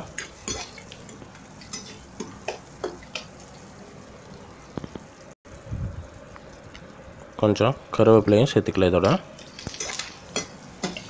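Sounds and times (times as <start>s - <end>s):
vegetables sizzling in hot oil: 0.0s - 11.0s
ladle scraping a pan: 9.4s - 11.0s.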